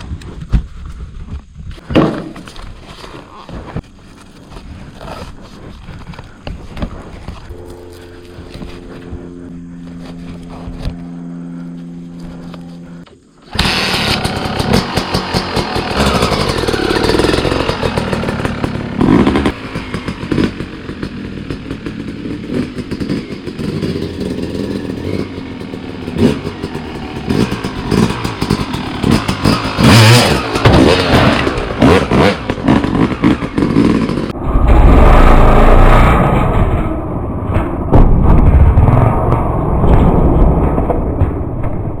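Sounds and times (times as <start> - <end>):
dirt bike engine revving: 7.4 - 36.8
deep low rumble: 34.2 - 42.0.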